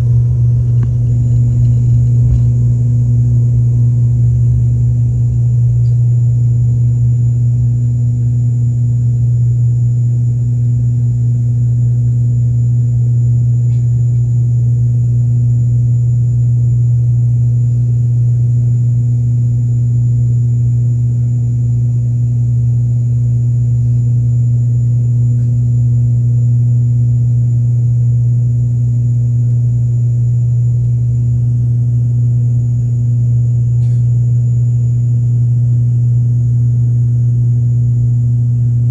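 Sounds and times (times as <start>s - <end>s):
aircraft engines droning: 0.0s - 6.9s
faint high whine: 0.0s - 10.3s.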